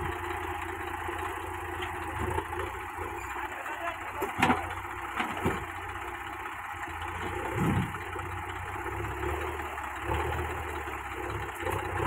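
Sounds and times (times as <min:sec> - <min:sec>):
heavy machinery engine idling: 0:00.0 - 0:12.0.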